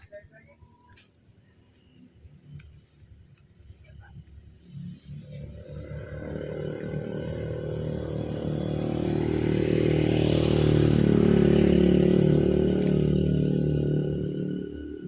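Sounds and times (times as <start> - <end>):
motorcycle engine passing by: 4.4 - 15.0.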